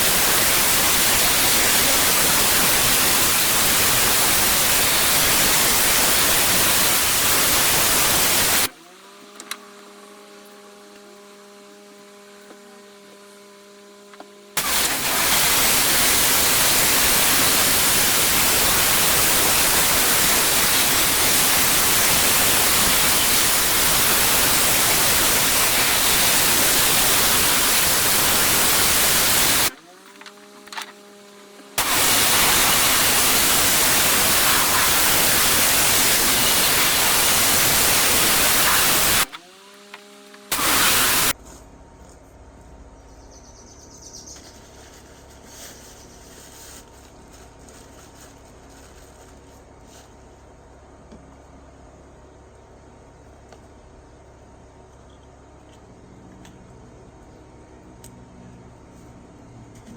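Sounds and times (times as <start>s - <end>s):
pressure washer water jet hissing: 0.0s - 8.7s, 14.6s - 29.8s, 31.6s - 39.7s, 40.4s - 41.4s.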